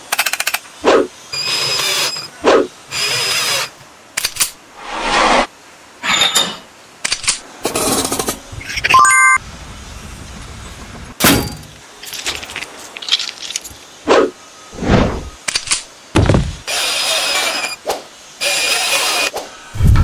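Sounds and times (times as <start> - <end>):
power tool whining: 1.4 - 2.3, 16.7 - 17.8, 18.4 - 19.3.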